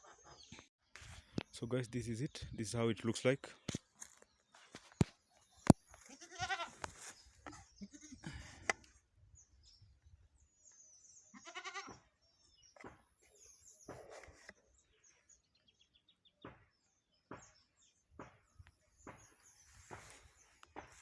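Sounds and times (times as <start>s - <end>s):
goat bleating: 6.1s - 6.9s, 7.5s - 8.3s, 11.3s - 12.0s.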